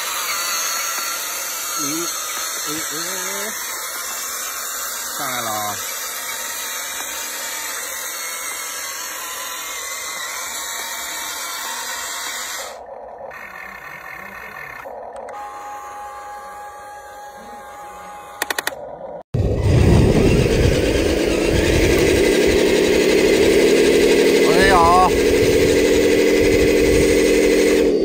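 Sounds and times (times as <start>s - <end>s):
electric motor whirring: 0.0s - 28.0s
quick clicks: 18.4s - 18.8s.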